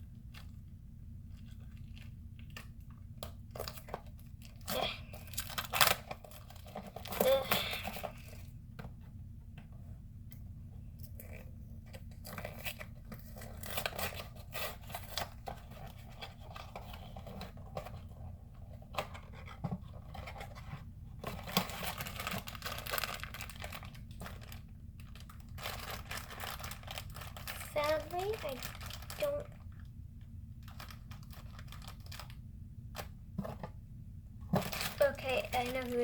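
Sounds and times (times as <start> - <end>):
steady low hum: 0.0 - 36.0
packaging torn and crinkled: 1.4 - 8.4, 21.2 - 29.9, 30.6 - 33.1, 34.6 - 36.0.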